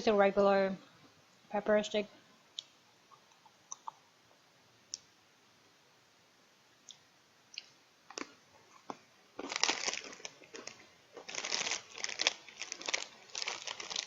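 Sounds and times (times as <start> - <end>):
plastic packaging crinkling: 8.1 - 14.0.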